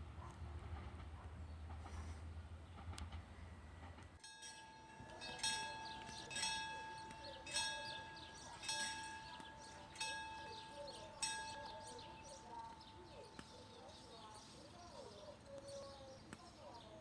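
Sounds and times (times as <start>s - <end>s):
level-crossing bell ringing: 4.2s - 14.4s.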